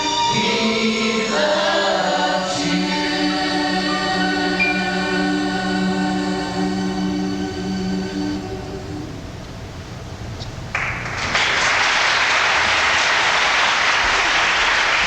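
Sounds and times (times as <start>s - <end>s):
choir singing: 0.0s - 9.3s
audience applause: 10.7s - 15.0s.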